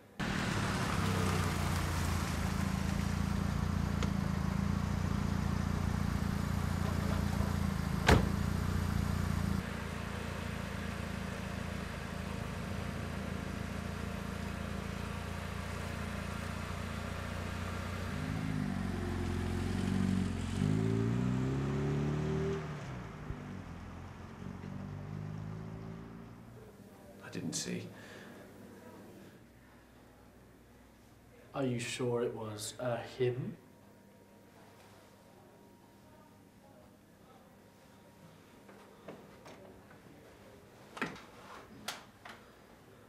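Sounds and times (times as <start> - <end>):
car engine idling: 0.2 - 19.8
car engine revving: 0.2 - 26.5.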